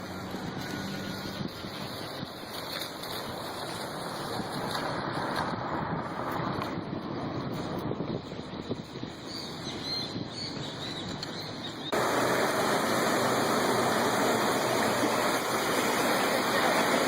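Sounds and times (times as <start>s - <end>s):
floodwater rushing: 0.0s - 6.6s, 11.9s - 17.0s.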